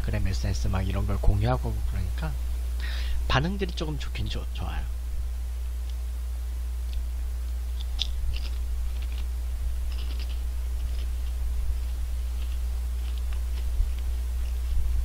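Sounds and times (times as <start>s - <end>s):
steady low hum: 0.0s - 15.0s
potato chips crunching: 7.7s - 14.8s.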